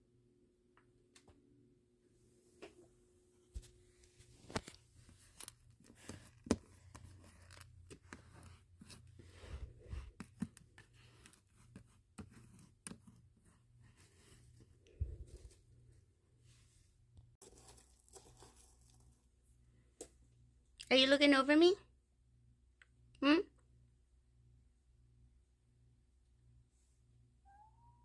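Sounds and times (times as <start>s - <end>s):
beads clicking and rattling: 17.4s - 19.1s.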